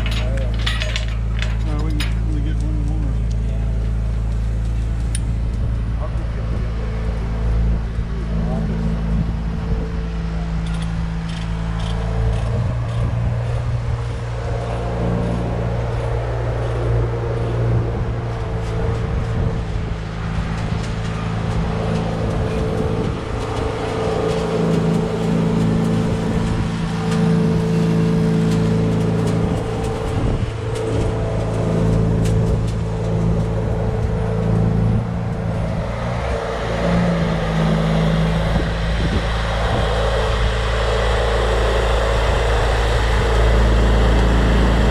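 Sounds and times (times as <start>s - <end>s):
heavy engine running: 0.0s - 44.9s.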